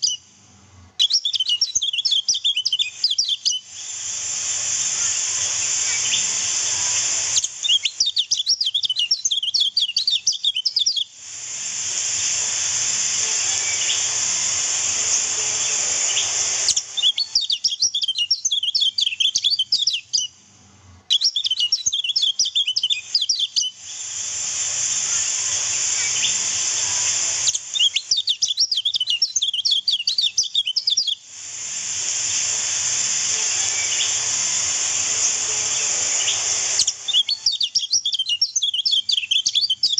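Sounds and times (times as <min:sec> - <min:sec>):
bird high chattering song: 0:00.0 - 0:00.3, 0:01.0 - 0:03.8, 0:04.8 - 0:11.1, 0:13.4 - 0:14.2, 0:14.9 - 0:20.4, 0:21.1 - 0:24.0, 0:25.2 - 0:31.2, 0:33.5 - 0:39.9
rushing water hiss: 0:01.4 - 0:20.3, 0:21.0 - 0:39.9.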